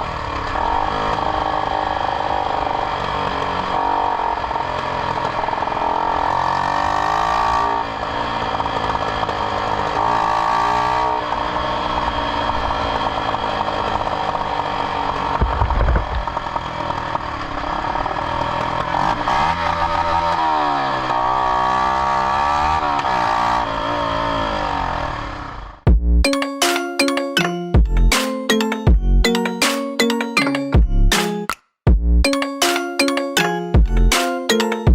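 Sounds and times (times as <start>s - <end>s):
motorcycle engine revving: 0.0s - 25.9s
exhaust pops: 15.3s - 17.3s.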